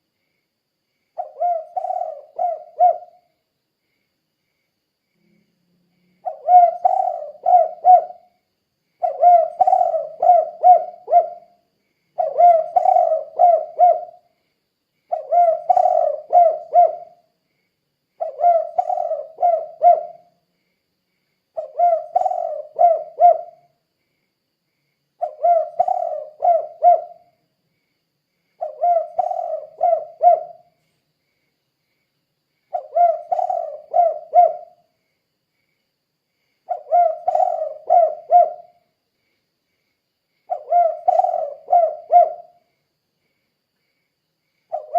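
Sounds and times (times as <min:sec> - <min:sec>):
dove cooing: 0:01.2 - 0:03.3, 0:06.2 - 0:08.3, 0:09.0 - 0:11.6, 0:12.2 - 0:14.3, 0:15.1 - 0:17.2, 0:18.2 - 0:20.3, 0:21.6 - 0:23.7, 0:25.2 - 0:27.3, 0:28.6 - 0:30.8, 0:32.7 - 0:34.8, 0:36.7 - 0:38.8, 0:40.5 - 0:42.6.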